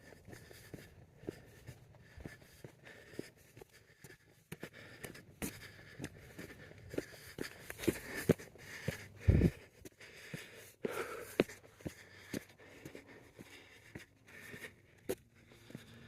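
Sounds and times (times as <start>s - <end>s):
footsteps crunching on dirt trail: 0.0s - 16.0s.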